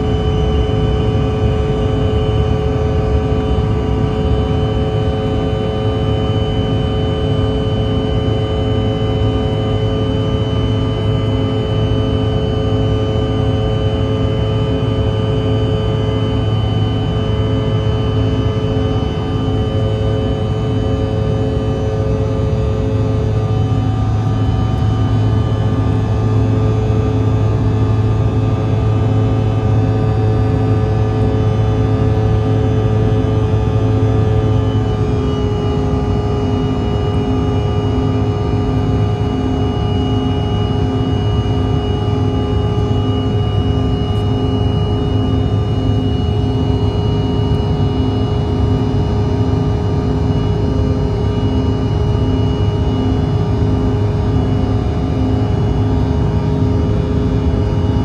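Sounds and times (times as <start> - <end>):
jet engine cabin drone: 0.0 - 58.0.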